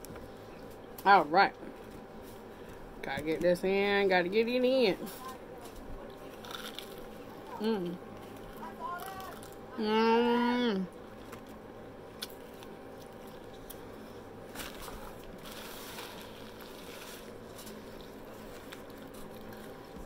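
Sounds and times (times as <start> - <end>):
person chewing fried food: 6.1 - 9.6, 11.0 - 20.0
paper napkin rustling: 14.5 - 20.0.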